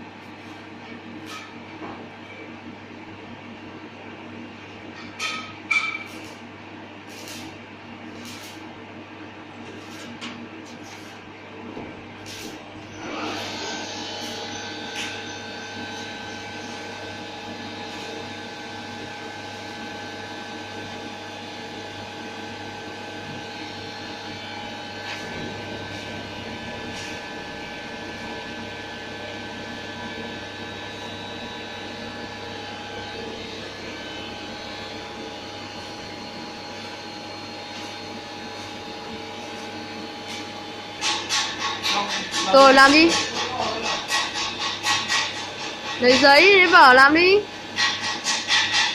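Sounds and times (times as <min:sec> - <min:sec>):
machine hum with whir: 0:00.0 - 0:48.9.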